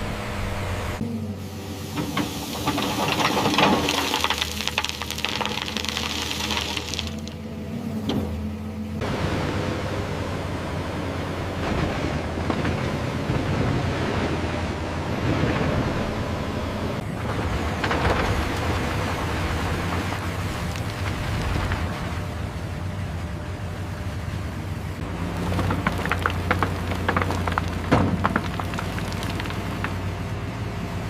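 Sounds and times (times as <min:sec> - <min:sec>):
diesel engine under load: 0:00.0 - 0:31.0
rock crackling and crunching: 0:02.4 - 0:07.4, 0:17.2 - 0:22.0, 0:25.0 - 0:30.3.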